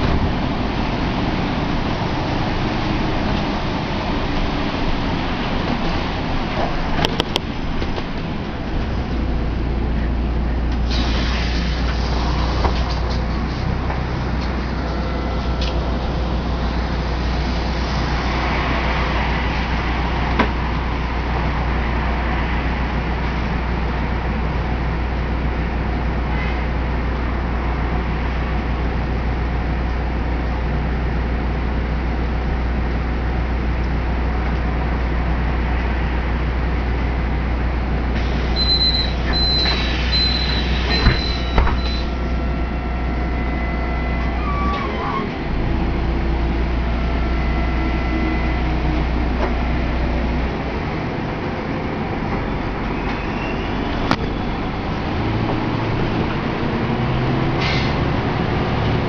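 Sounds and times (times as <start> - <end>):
traffic rumble: 0.0 - 59.0
vehicle low hum: 0.0 - 59.0
tyre hiss on wet road: 10.8 - 12.8
door warning beeps: 38.6 - 42.2
doors knocking shut: 41.0 - 41.9.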